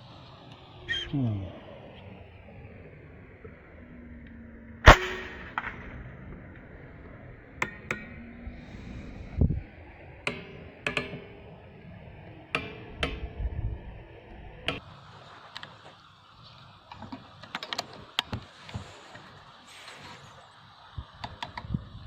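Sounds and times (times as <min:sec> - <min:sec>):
sharp loud crack: 0:04.8 - 0:06.4
light metallic clicks and knocks: 0:07.6 - 0:09.5, 0:10.3 - 0:14.8.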